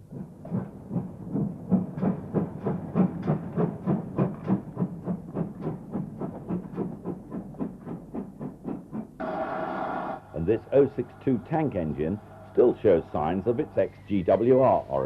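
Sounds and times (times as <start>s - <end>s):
steam train chuffing: 0.0s - 15.0s.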